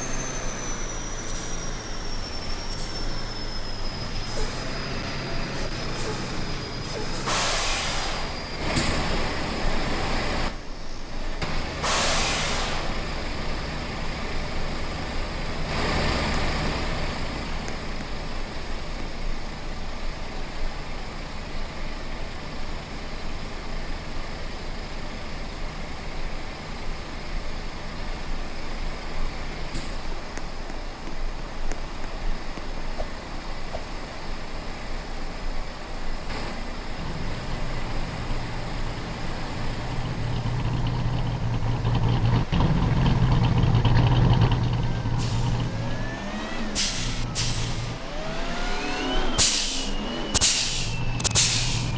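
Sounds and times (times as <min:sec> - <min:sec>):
truck engine running: 0:00.0 - 0:10.7, 0:36.2 - 0:51.9
air hiss bursts: 0:01.1 - 0:09.0, 0:11.8 - 0:13.0, 0:49.4 - 0:51.9.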